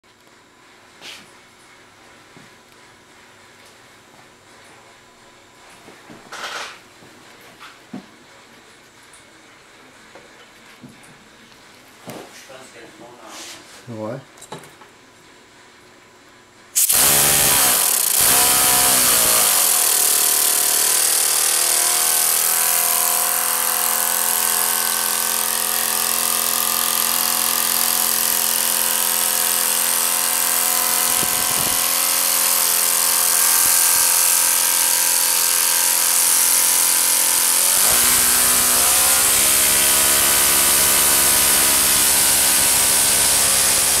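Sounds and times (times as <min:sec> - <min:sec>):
mechanical whine: 0:29.2 - 0:35.8.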